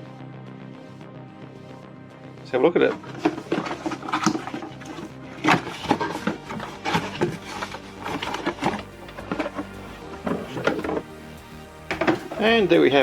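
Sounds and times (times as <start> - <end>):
cardboard box being opened: 3.0 - 11.1
rustles scrapes and knocks: 3.0 - 11.2, 11.9 - 12.8.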